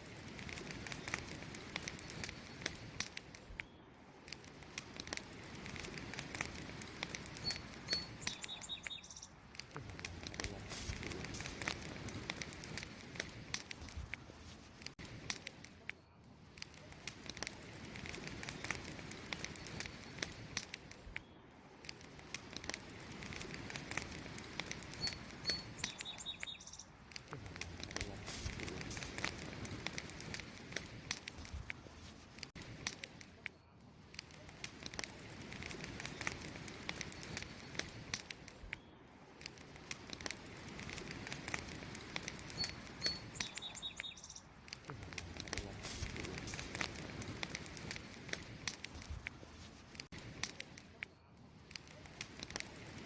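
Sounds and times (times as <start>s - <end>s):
campfire crackling and popping: 0.0s - 53.0s
bird chirping: 7.4s - 9.4s, 24.9s - 27.0s, 42.5s - 44.5s.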